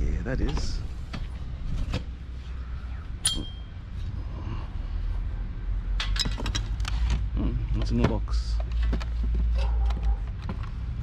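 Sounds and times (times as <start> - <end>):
metallic clink: 3.2 - 3.8
metal scrap clicks and rattles: 6.0 - 7.2.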